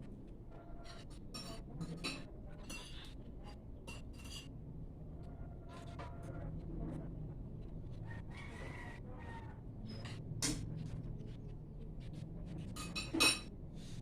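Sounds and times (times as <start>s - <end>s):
rooster crowing: 8.0s - 9.6s
tableware clinking: 12.8s - 13.5s.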